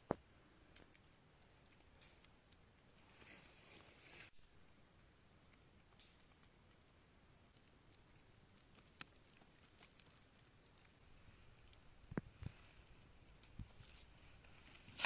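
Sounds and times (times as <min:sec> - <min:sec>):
bird chirps gliding downward: 0:06.2 - 0:07.8.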